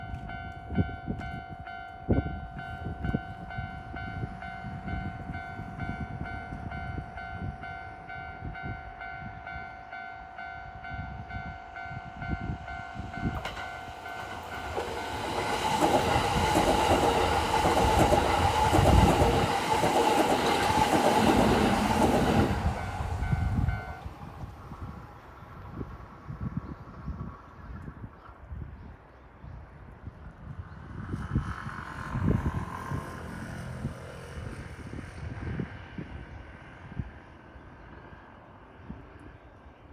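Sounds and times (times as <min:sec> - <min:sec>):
level crossing warning bell: 0:00.0 - 0:24.1
train wheels on rails: 0:11.3 - 0:25.0.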